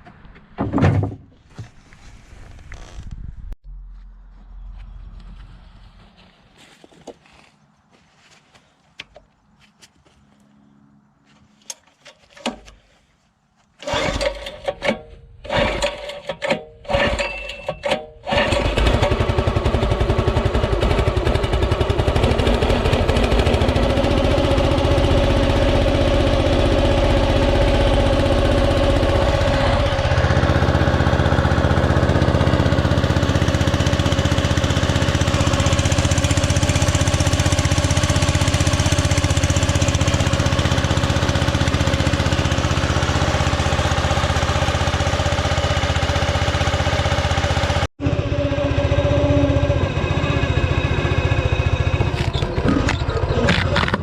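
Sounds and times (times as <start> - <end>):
excavator diesel engine running: 13.8 - 54.0.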